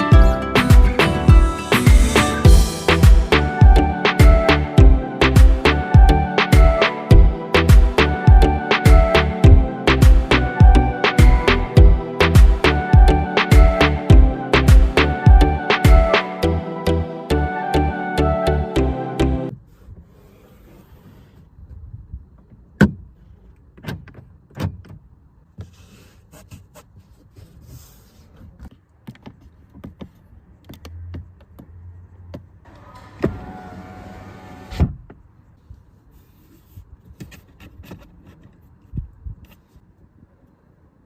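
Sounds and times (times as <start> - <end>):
power window motor whining: 32.7 - 34.9.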